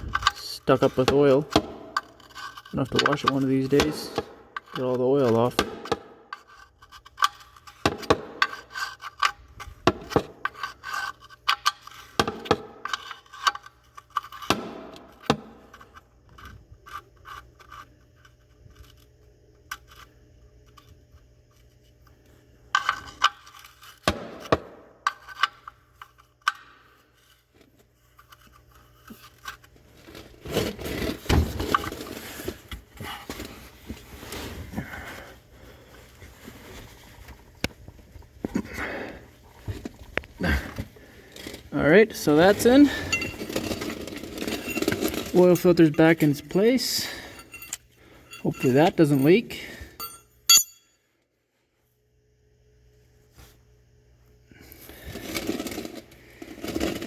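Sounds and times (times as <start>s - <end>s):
scraping and rubbing: 0.0s - 5.5s, 27.0s - 49.4s, 54.9s - 57.0s
tools clicking and clinking: 42.4s - 43.8s, 44.4s - 51.0s.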